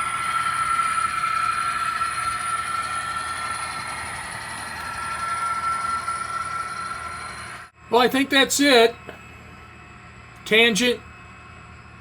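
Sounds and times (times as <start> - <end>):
model train rolling on track: 0.0 - 8.9
model train whine: 0.0 - 12.0.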